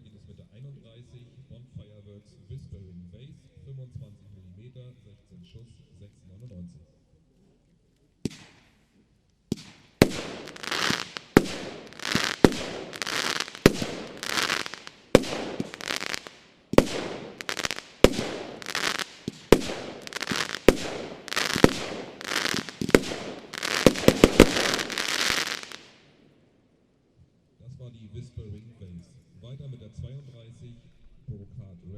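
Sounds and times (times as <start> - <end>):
firework launch thumps: 8.3 - 8.6, 9.5 - 25.9
crackling hiss of firework bursts: 9.5 - 26.0.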